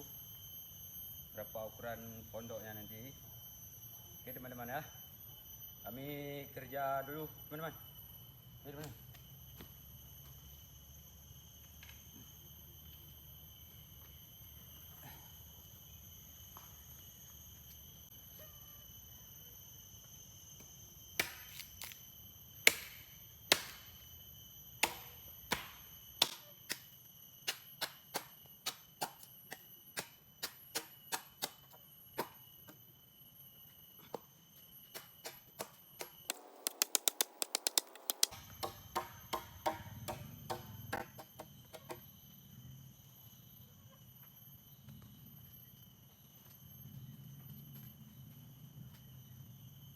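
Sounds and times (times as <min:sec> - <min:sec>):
high insect drone: 0:00.0 - 0:49.9.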